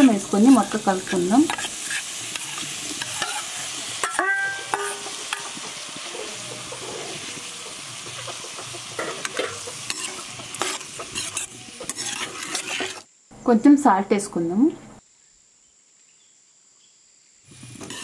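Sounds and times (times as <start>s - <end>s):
food sizzling in oil: 0.0s - 13.1s, 17.4s - 18.0s
steel ladle scraping a pan: 0.0s - 13.1s, 17.5s - 18.0s.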